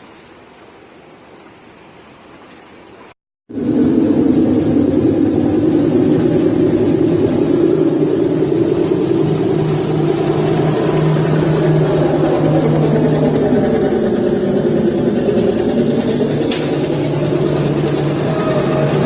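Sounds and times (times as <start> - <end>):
machinery drone: 3.5 - 19.0.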